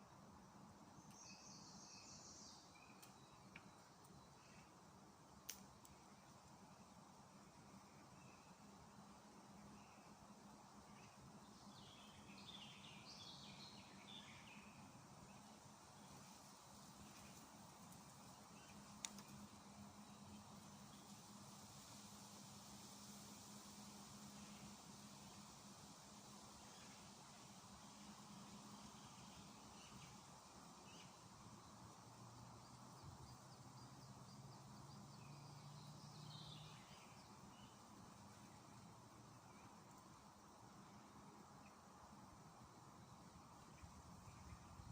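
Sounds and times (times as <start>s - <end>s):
faint songbird chirping: 0.0s - 44.9s
low background hum: 0.0s - 44.9s.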